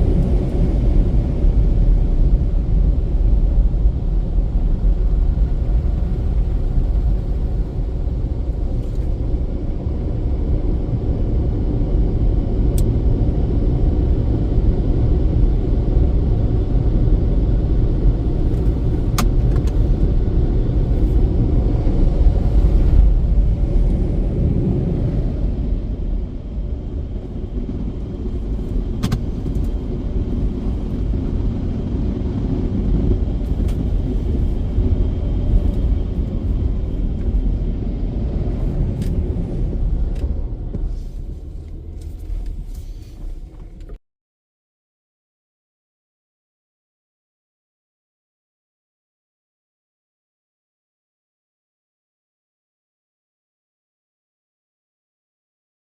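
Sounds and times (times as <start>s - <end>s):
car wash machinery rumbling: 0.0s - 15.1s, 16.2s - 44.0s.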